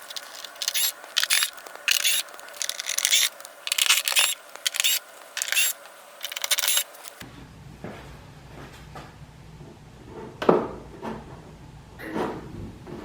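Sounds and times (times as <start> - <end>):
cordless screwdriver bursts: 0.0 - 7.2.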